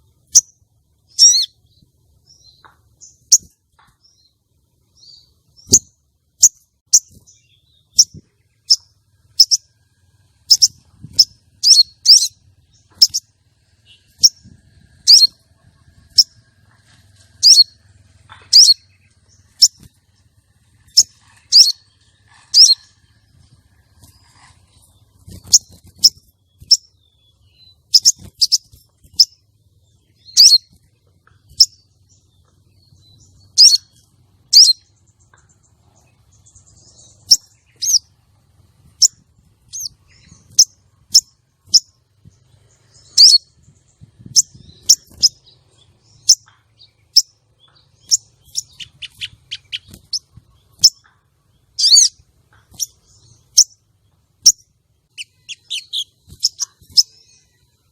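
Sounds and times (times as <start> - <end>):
bird chirping: 0.0 - 57.9.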